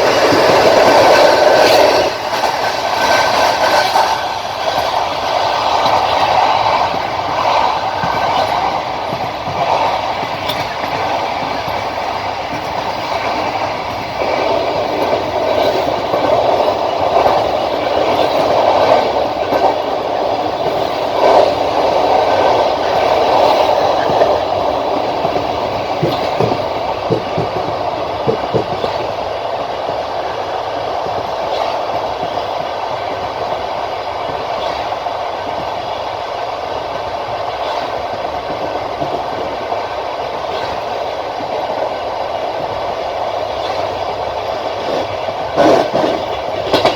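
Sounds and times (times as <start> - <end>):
train wheels rumbling on rails: 0.0 - 46.9
wheels knocking over rail joints: 44.8 - 46.9.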